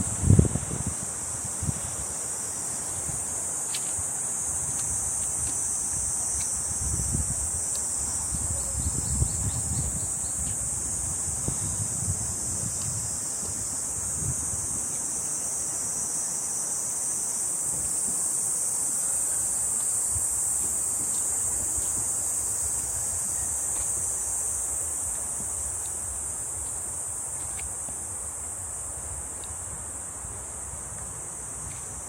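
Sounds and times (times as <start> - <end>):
wind rumble on microphone: 0.0 - 2.2, 4.4 - 15.1
cicadas buzzing: 0.0 - 32.0.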